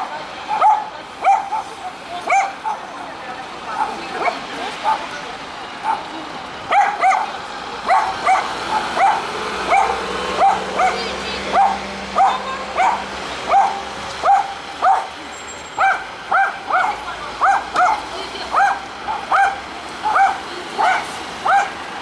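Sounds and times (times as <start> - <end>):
dog barking: 0.5 - 2.8, 5.8 - 6.1, 6.7 - 7.3, 7.9 - 15.1, 15.8 - 21.8.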